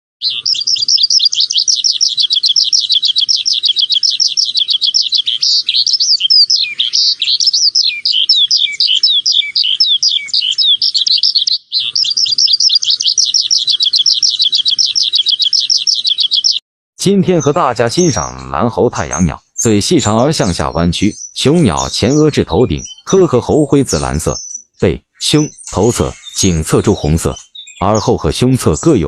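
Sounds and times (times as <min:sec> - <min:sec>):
songbirds chirping: 0:00.2 - 0:29.0.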